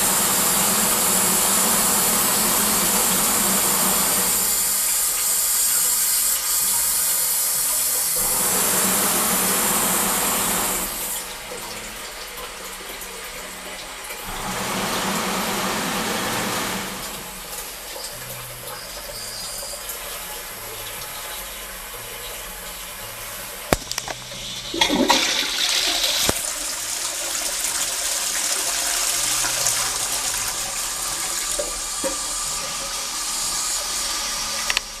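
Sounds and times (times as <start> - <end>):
running water: 0.0 - 35.0
toilet flushing: 0.0 - 35.0.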